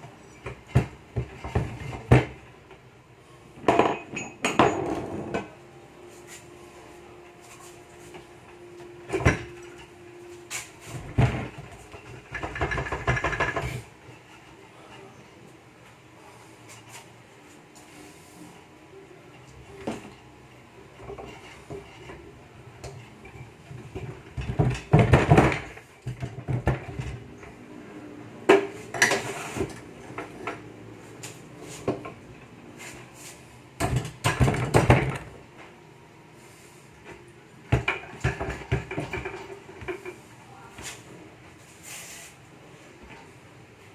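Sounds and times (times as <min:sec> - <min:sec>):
metal parts and tools clanking: 0:03.6 - 0:05.5.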